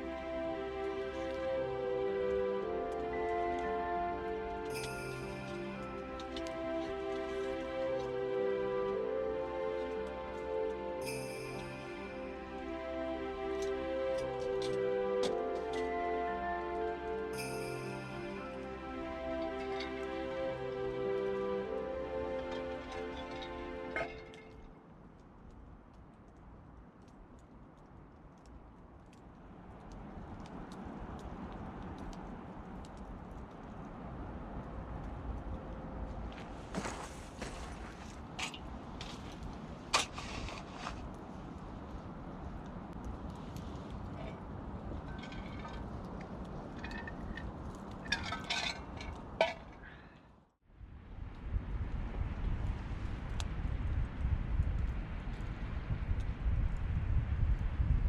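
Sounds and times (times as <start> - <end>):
background music: 0.0 - 24.8
campfire crackling: 0.0 - 50.4, 51.0 - 57.8.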